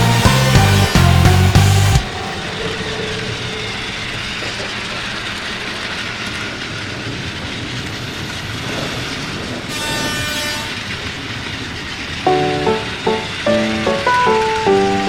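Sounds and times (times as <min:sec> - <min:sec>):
toy trains whirring on track: 0:03.4 - 0:15.0.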